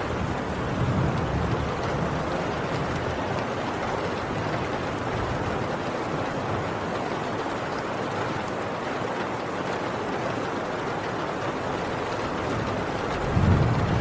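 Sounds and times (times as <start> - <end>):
distant thunder rumble: 0.0 - 6.6, 11.8 - 14.0
heavy rain on a tin roof: 0.0 - 14.0.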